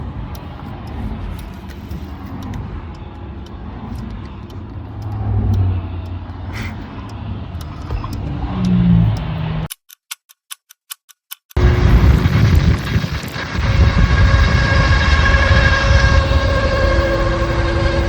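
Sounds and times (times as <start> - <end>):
car engine rumbling: 0.0 - 9.7, 11.6 - 18.0
sharp ticks: 0.0 - 14.4.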